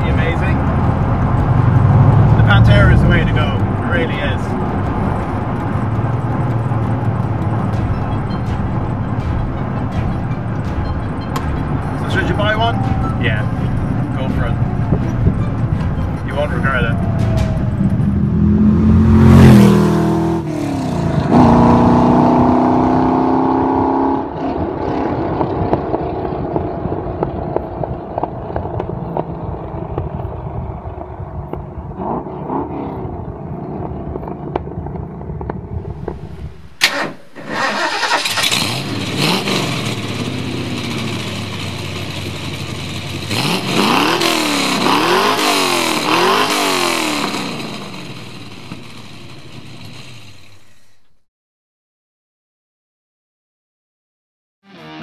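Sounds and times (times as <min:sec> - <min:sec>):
car engine idling: 0:00.0 - 0:20.4, 0:33.2 - 0:51.2
engine revving blips: 0:00.0 - 0:30.0, 0:32.0 - 0:50.8
car engine accelerating hard: 0:00.0 - 0:50.7.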